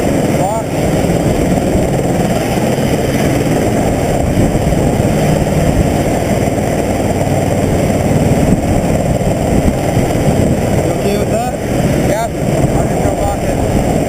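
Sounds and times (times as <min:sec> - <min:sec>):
helicopter rotor and engine: 0:00.0 - 0:14.0.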